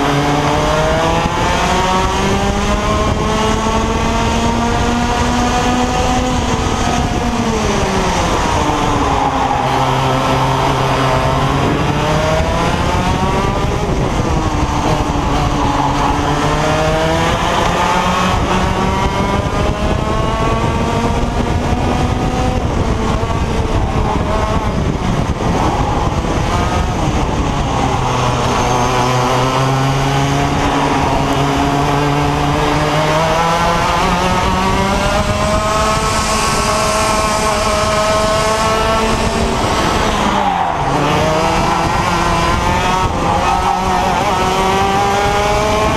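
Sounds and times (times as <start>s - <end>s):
kart engine revving: 0.0s - 45.9s.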